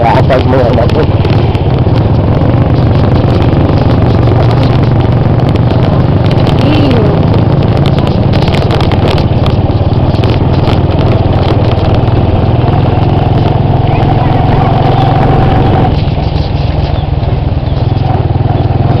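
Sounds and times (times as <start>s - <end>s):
vehicle engine and road noise: 0.0s - 19.0s
rattles: 0.1s - 13.7s.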